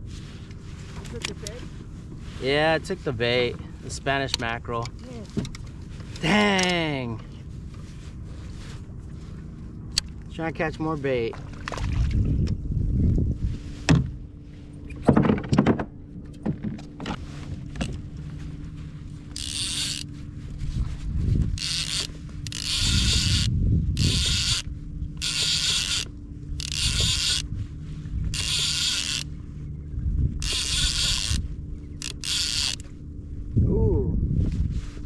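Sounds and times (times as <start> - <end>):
fishing reel gears whirring: 19.1 - 20.4, 21.4 - 33.1.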